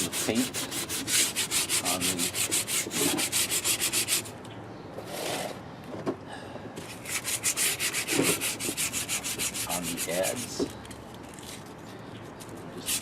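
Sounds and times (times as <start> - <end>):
hand sanding strokes: 0.0 - 4.3, 6.9 - 10.6.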